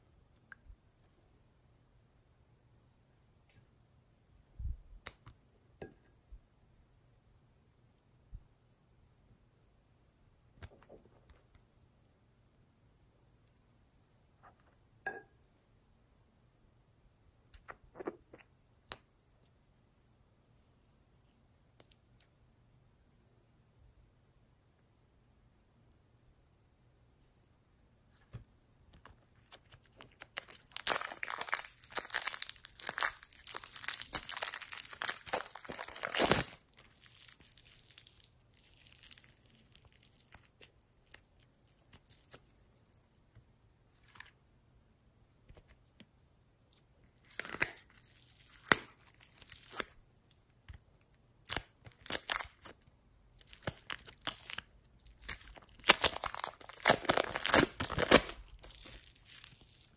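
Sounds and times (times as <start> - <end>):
slime squeezed crackling and popping: 29.4 - 42.5, 47.2 - 50.0, 51.4 - 52.8, 53.4 - 59.9.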